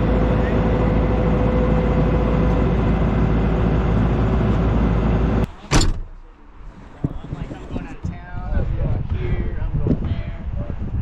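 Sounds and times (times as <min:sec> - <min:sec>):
loud engine running: 0:00.0 - 0:05.5.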